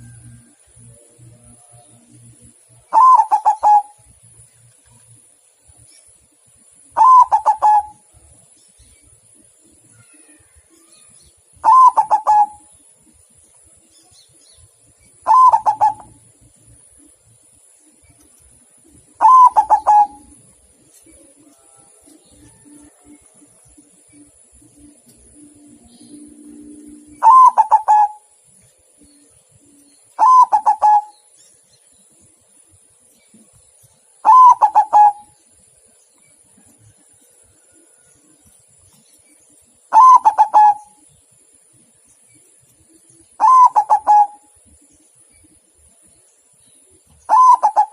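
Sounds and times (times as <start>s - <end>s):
dove cooing: 2.0s - 4.0s, 7.0s - 8.0s, 11.6s - 12.7s, 15.2s - 16.3s, 19.2s - 20.5s, 25.3s - 28.3s, 30.2s - 31.2s, 34.2s - 35.4s, 39.9s - 41.1s, 43.3s - 44.6s, 47.3s - 47.9s.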